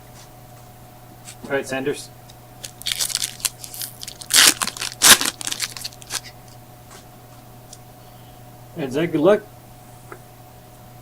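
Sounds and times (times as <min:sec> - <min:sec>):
crinkly wrapper torn and crumpled: 0:02.6 - 0:06.3.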